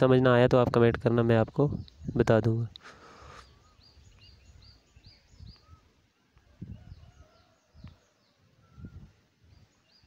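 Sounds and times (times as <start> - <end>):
birds chirping: 0.0 - 10.0
lower bird whistles: 8.6 - 9.1.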